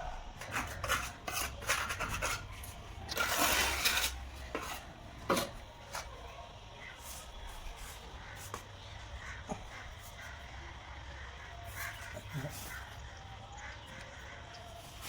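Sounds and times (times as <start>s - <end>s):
trowel scraping mortar and tile: 0.4s - 6.2s.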